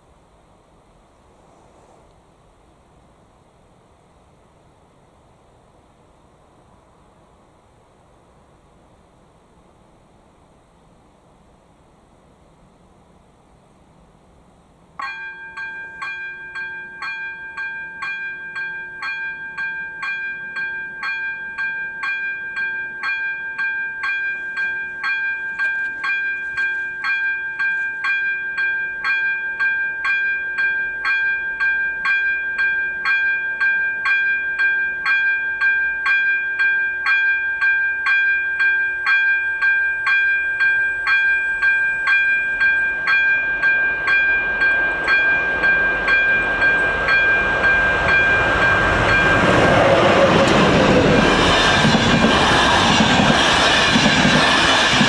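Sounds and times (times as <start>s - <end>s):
level crossing warning bell ringing: 15.0s - 52.0s.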